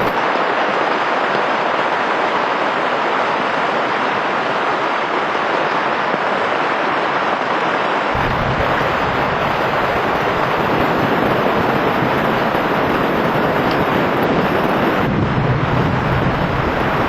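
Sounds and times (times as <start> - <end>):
heavy rain hissing: 0.0 - 17.0
low rumble: 8.2 - 13.8.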